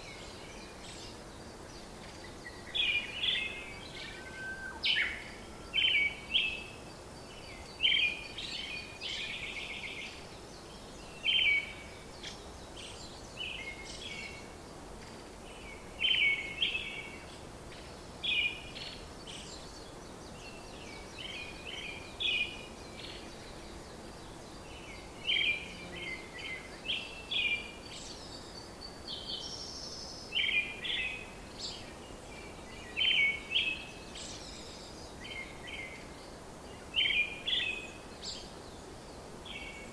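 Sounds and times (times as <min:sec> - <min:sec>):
background hiss: 0:00.0 - 0:39.9
small birds chirping: 0:00.0 - 0:39.9.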